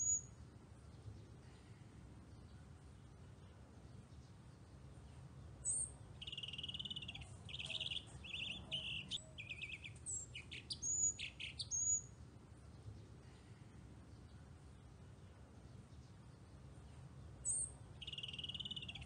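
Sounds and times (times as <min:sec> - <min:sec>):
bird singing trills: 0:00.0 - 0:00.4, 0:05.6 - 0:12.1, 0:17.4 - 0:19.0
faint background noise: 0:00.0 - 0:19.0.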